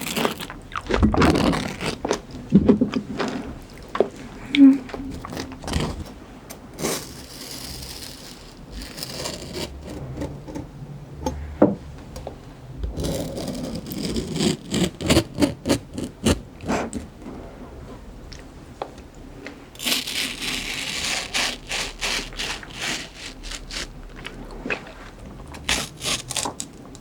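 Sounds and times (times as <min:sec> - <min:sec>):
chewing crunchy fruit: 0:00.0 - 0:06.0, 0:19.8 - 0:27.0.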